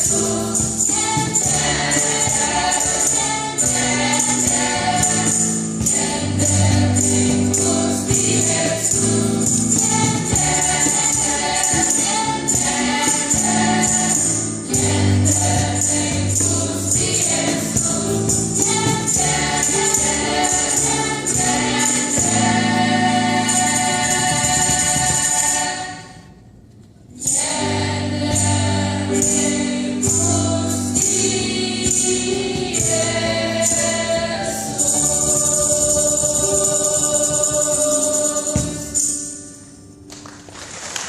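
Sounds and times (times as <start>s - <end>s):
church choir singing: 0.0s - 26.4s, 27.2s - 39.8s
instrumental accompaniment: 0.0s - 41.0s.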